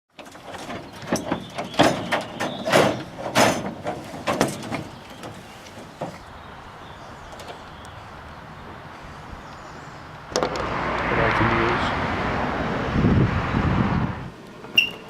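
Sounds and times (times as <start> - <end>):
metal cage banging and clattering: 0.2 - 6.2.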